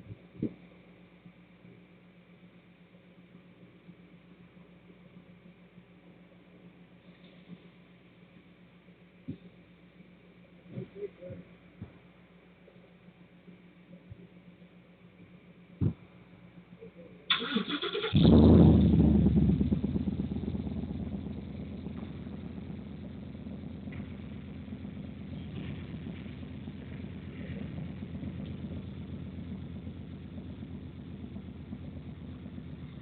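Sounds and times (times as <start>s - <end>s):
engine idling: 0.0s - 33.0s
engine starter cranking: 17.3s - 18.5s.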